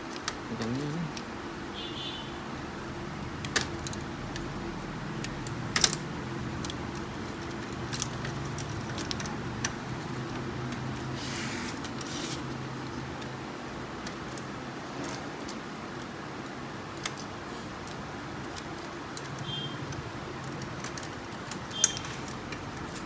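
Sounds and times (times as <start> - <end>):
brief scraping rustle: 11.2 - 12.4.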